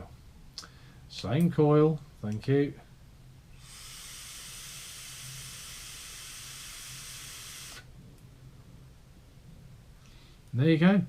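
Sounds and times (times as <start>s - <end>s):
vapour sizzling: 3.5s - 8.0s
vape atomizer hissing: 3.6s - 7.9s.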